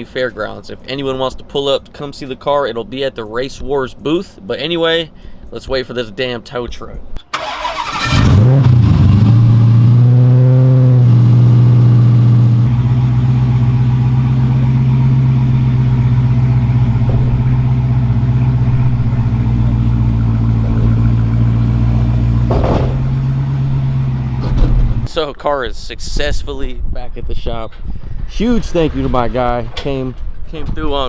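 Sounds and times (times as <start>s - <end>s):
vehicle engine idling: 7.3s - 25.1s.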